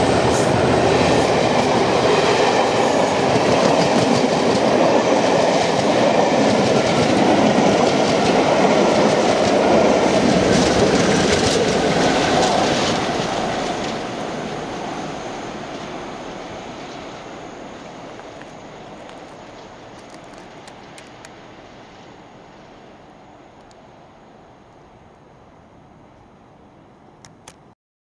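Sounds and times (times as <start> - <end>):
train wheels clattering over rail joints: 1.0 - 14.2.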